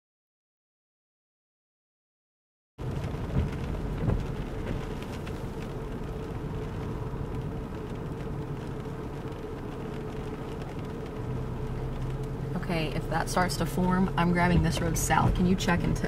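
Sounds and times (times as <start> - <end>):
car interior engine noise: 2.8 - 16.0.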